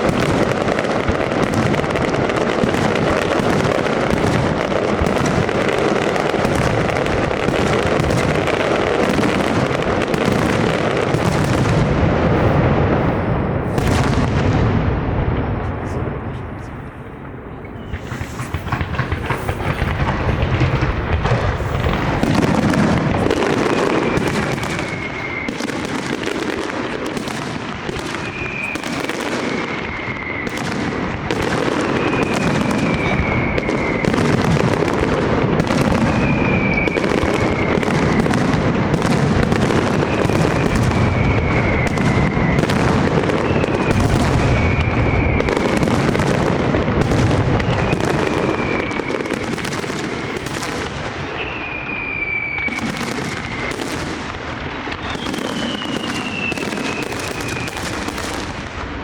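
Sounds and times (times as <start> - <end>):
fireworks bangs and crackle: 0.0 - 59.0
high whistle falling in pitch: 23.4 - 25.9, 31.9 - 34.4, 51.3 - 53.8, 54.9 - 57.9.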